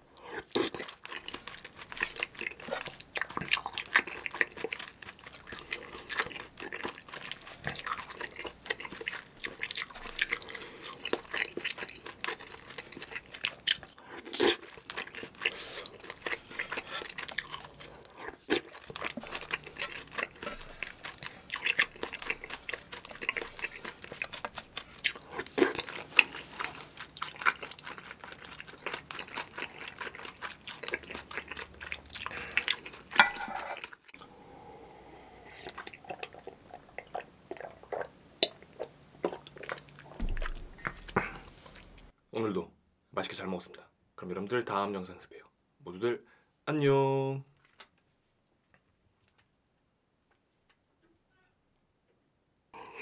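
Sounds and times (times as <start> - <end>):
chewing and wet mouth sounds: 0.2 - 42.1, 52.8 - 53.0.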